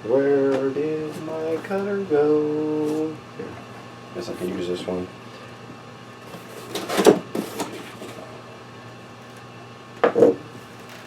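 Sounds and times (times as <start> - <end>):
box cutter cutting cardboard: 6.3 - 8.2.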